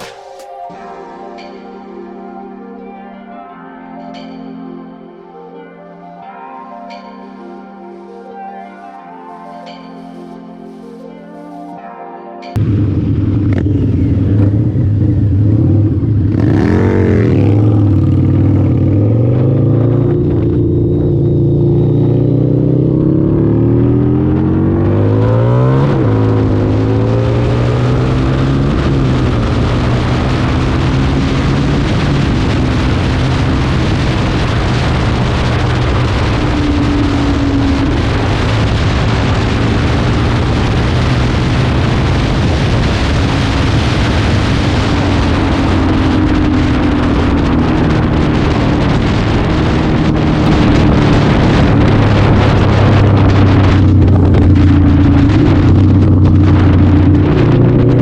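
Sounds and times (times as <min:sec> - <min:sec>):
motorcycle engine accelerating: 0:00.0 - 0:00.5, 0:12.6 - 0:58.0
wind rushing over microphone: 0:12.6 - 0:58.0.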